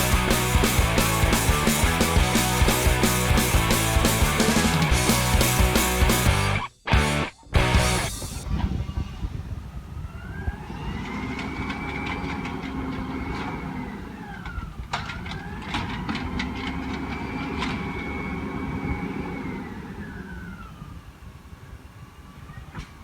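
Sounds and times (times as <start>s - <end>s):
truck engine rumble: 0.0s - 9.3s.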